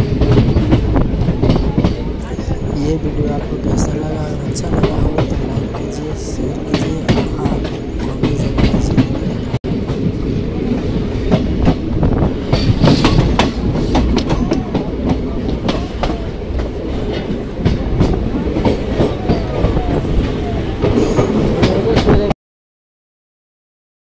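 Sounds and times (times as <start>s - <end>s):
train running gear rumble: 0.0s - 22.3s
wheels clacking over rail joints: 4.4s - 22.2s.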